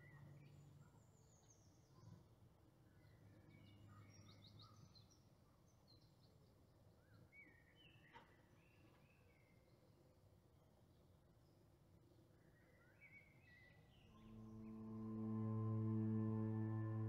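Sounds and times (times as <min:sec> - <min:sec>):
faint birds chirping: 0:10.9 - 0:17.0
low hum: 0:14.2 - 0:17.0.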